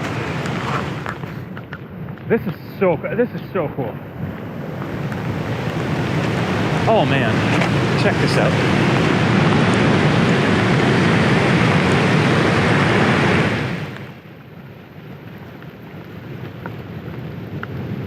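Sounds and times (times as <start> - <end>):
rushing water: 0.0 - 1.6, 2.4 - 14.3
wind buffeting microphone: 0.0 - 14.2.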